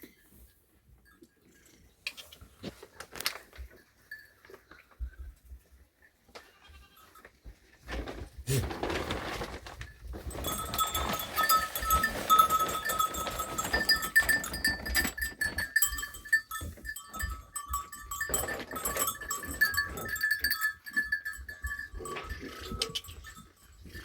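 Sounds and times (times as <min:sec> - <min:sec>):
sheep and goats bleating: 0:06.4 - 0:07.2, 0:10.4 - 0:24.0.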